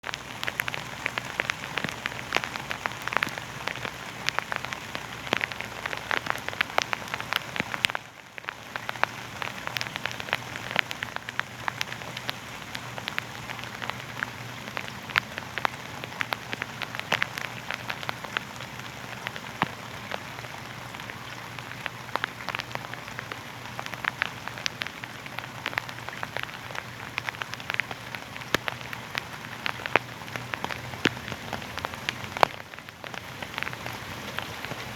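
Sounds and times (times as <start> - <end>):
raindrop taps: 0.0 - 34.9
steady rain hiss: 0.0 - 34.9.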